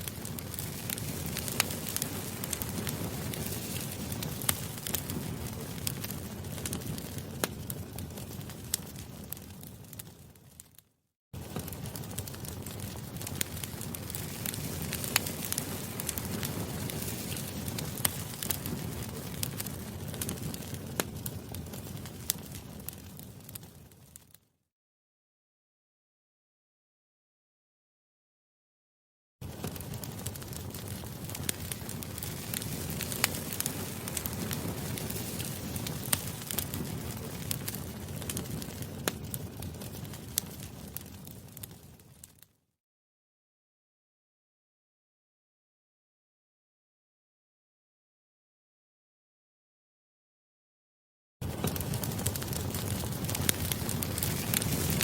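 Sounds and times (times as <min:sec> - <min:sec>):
campfire crackling and popping: 0:00.0 - 0:10.8, 0:11.4 - 0:24.4, 0:29.4 - 0:42.5, 0:51.4 - 0:55.0.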